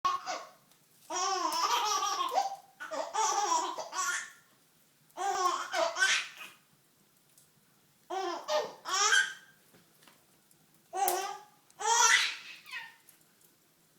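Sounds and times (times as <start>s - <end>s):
baby laughing and babbling: 0.1s - 4.4s, 5.2s - 6.6s, 8.1s - 9.4s, 10.9s - 13.0s.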